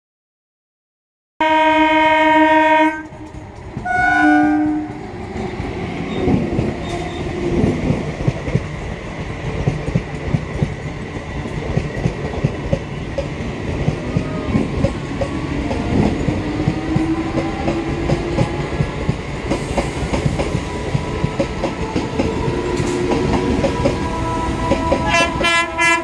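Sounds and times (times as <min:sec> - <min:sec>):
train horn blasts: 0:01.4 - 0:05.0, 0:24.1 - 0:26.0
train rumbling past: 0:01.7 - 0:26.0.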